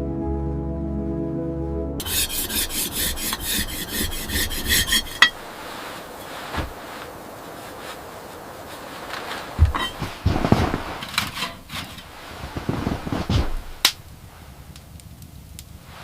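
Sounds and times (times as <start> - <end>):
soft music: 0.0 - 2.0
rhythmic rasping strokes: 2.0 - 5.6
rustling: 2.0 - 16.0.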